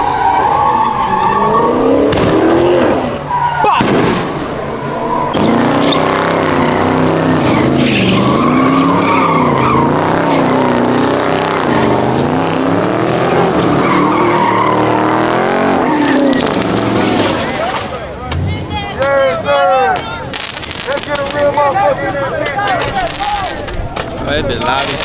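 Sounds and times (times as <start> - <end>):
car engine revving: 0.0 - 19.2
tyres squealing: 2.8 - 25.0.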